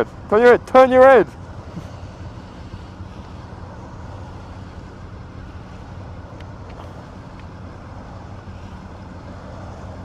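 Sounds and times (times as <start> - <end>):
motorcycle engine running: 0.0 - 10.0
road and wind noise: 0.0 - 10.0
faint ticks: 6.3 - 7.6.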